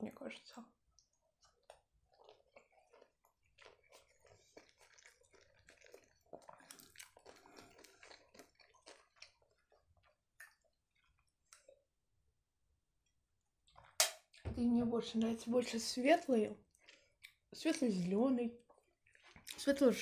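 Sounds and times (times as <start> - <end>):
wet chewing mouth clicks: 0.9 - 11.8.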